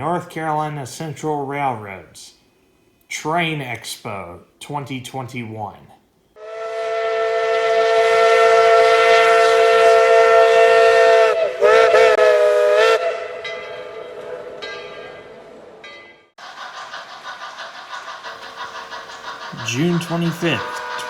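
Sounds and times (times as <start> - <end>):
steam locomotive whistle: 6.4 - 14.6, 19.5 - 21.0.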